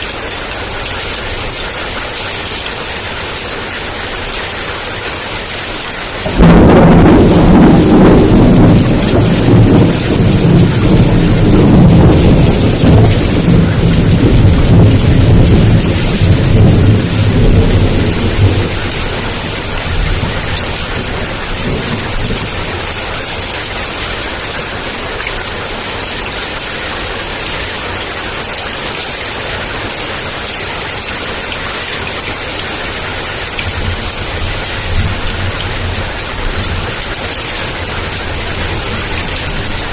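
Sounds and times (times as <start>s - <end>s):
heavy rain falling: 0.0s - 39.9s
loud thunderclap rumbling: 6.1s - 23.6s, 33.3s - 39.9s.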